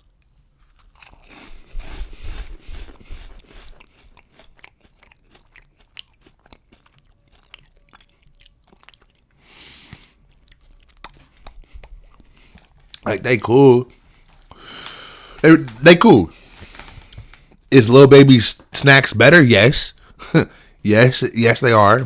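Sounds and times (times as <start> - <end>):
person crunching cheese puffs: 0.0 - 13.1.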